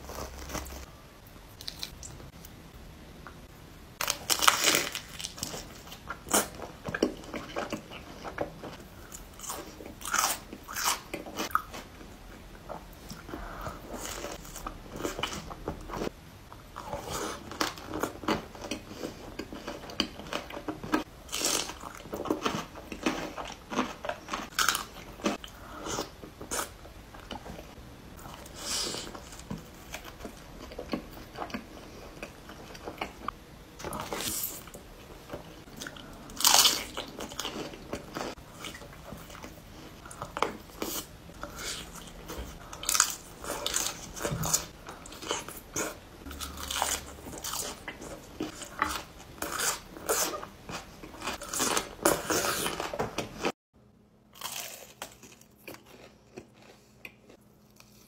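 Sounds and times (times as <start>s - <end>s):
crunchy bites and chewing: 4.0s - 11.9s, 16.8s - 27.5s, 35.7s - 53.5s, 54.3s - 58.0s.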